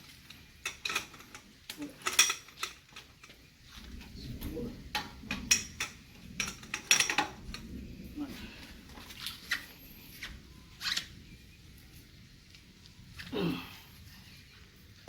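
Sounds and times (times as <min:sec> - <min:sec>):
metal tools clinking and clanking: 0:00.0 - 0:08.0
low muffled rumble: 0:03.6 - 0:15.0.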